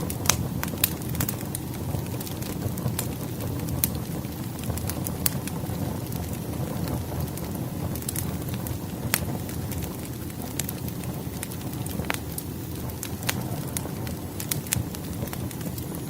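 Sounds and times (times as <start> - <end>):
wood fire crackling and popping: 0.0 - 16.0.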